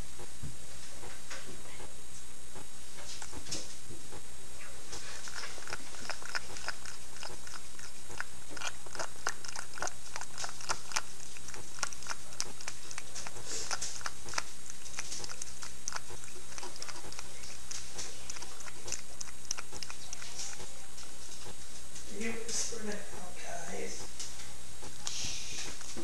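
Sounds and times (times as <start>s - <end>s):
cat chewing food: 0.0s - 26.0s.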